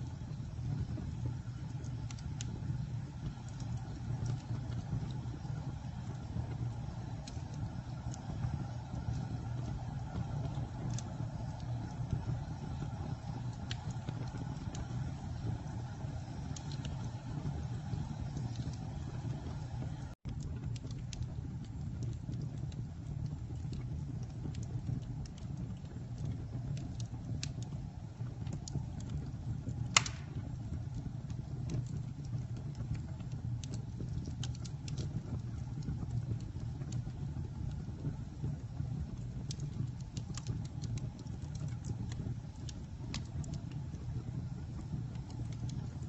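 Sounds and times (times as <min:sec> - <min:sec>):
campfire crackling: 0:00.0 - 0:46.0
steady low rumble: 0:00.0 - 0:46.0
loud pop: 0:29.9 - 0:30.4.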